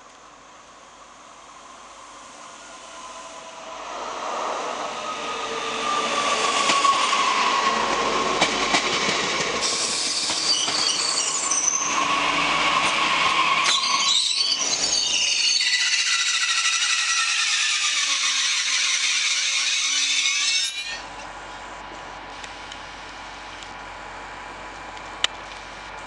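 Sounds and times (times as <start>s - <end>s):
passenger train running: 0.0s - 26.0s
train wheels squealing: 4.8s - 7.8s, 9.6s - 21.0s.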